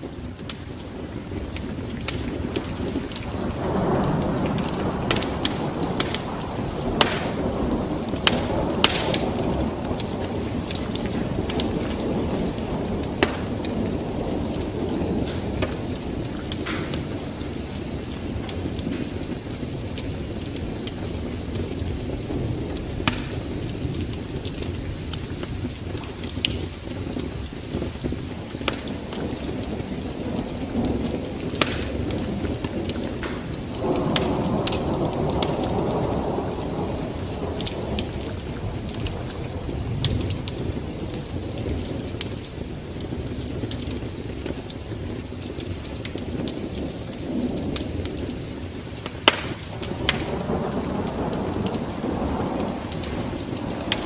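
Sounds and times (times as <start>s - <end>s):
fire crackles and pops: 0.0s - 54.0s
low rumble of fire: 0.0s - 54.0s.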